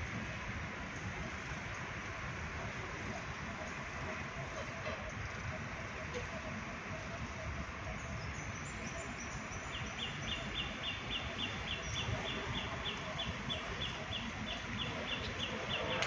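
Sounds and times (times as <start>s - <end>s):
steady background rumble: 0.0s - 16.0s
bird chirping: 7.3s - 16.0s.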